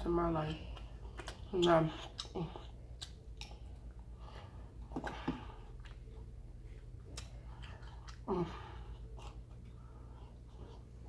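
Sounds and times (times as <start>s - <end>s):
steady low hum: 0.0s - 11.0s
chewing with wet mouth clicks: 0.4s - 4.1s, 5.7s - 8.3s, 8.9s - 10.9s.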